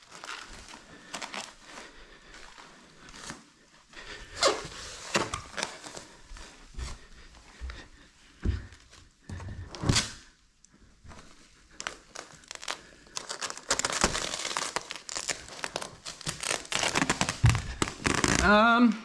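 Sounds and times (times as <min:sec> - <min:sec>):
plastic film crinkling: 0:00.0 - 0:01.6, 0:11.7 - 0:18.6.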